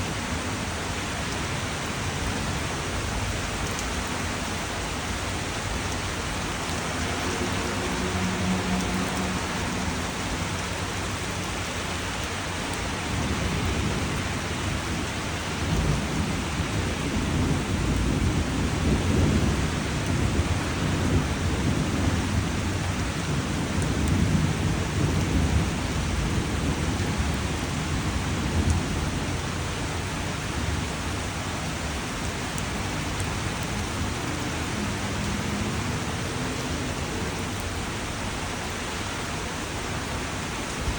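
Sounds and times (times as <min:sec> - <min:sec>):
rain falling: 0:00.0 - 0:40.9
thunder rumbling: 0:02.2 - 0:31.1.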